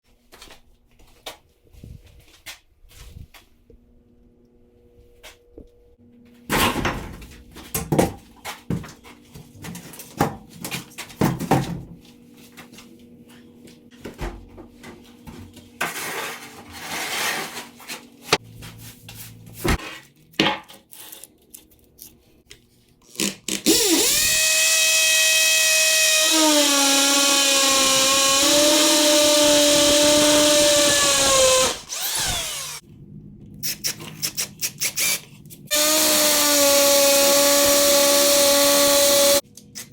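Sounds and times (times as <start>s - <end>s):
power drill whining: 23.7s - 32.8s, 35.7s - 39.4s.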